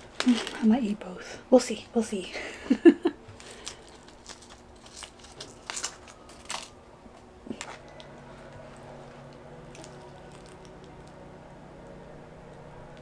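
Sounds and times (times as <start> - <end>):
faint low hum: 0.0 - 13.0
quiet chewing: 3.3 - 12.0
seasoning packet crackling: 3.4 - 6.8, 9.2 - 11.2.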